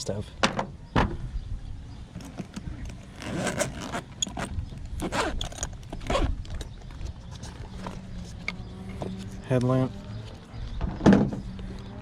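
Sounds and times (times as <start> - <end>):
zipper rasping: 2.2 - 6.4.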